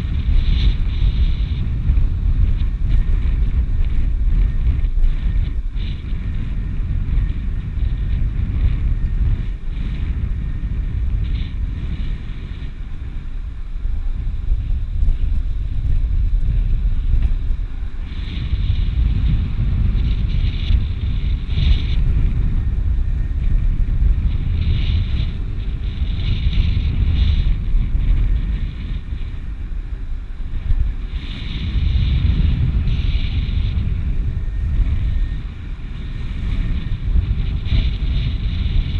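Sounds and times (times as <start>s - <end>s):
higher wind hiss: 0.0s - 38.9s
wind buffeting microphone: 0.0s - 38.9s.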